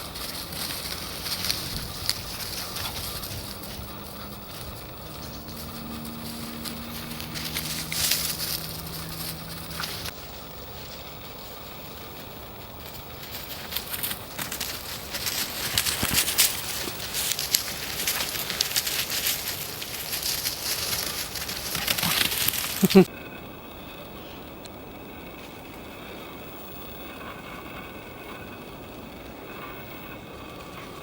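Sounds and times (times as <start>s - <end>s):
footsteps crunching underfoot: 0.0s - 23.1s
faint low hum: 0.0s - 31.0s.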